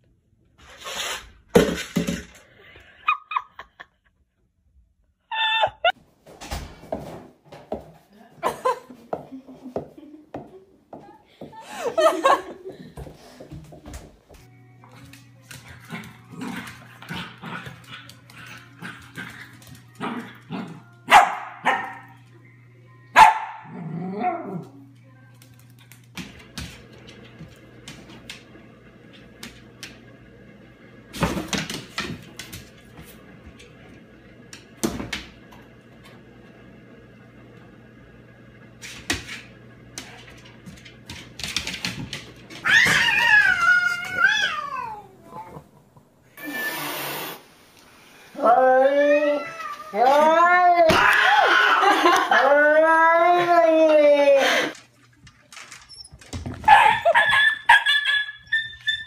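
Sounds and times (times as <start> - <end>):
dog yelps: 56.7 - 59.0.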